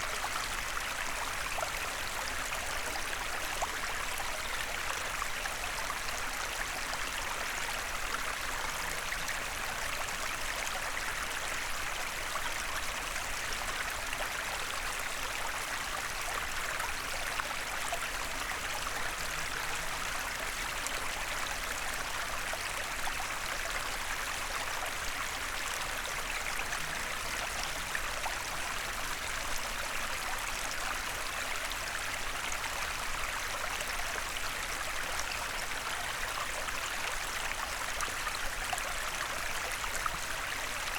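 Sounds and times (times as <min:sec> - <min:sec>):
stream babbling over stones: 0:00.0 - 0:40.9.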